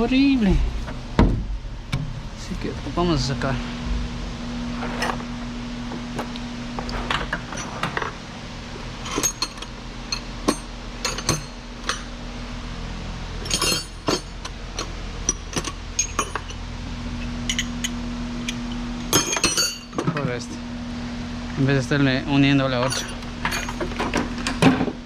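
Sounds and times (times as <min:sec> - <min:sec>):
steady low hum: 0:00.0 - 0:25.0
metal hand tools clinking: 0:13.4 - 0:14.4, 0:22.8 - 0:24.0.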